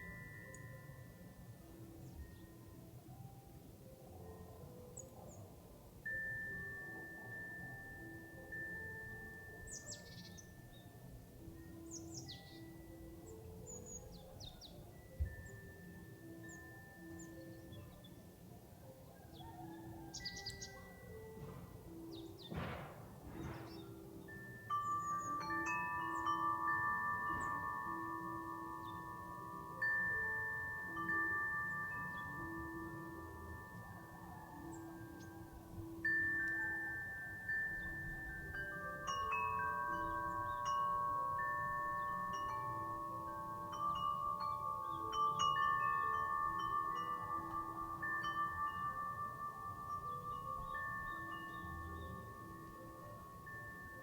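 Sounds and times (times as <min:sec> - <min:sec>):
wind chime ringing: 0:00.0 - 0:54.0
wind gusts: 0:20.9 - 0:54.0.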